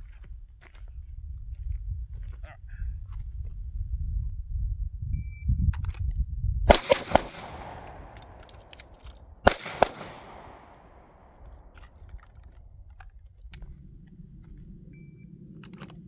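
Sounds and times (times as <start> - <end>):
echoing gunshots: 6.7 - 11.8.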